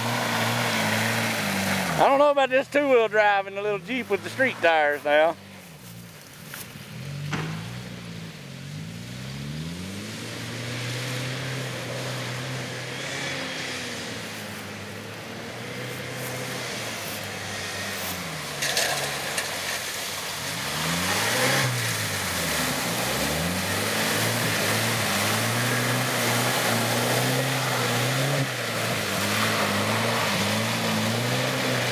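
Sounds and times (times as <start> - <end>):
off-road vehicle engine revving: 0.0 - 31.9.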